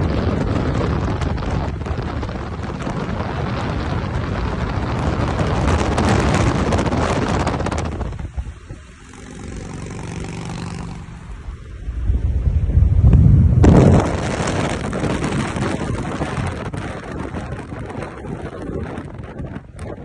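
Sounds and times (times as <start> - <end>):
wind rush on microphone: 0.0 - 20.0
motorcycle engine running: 8.9 - 11.3.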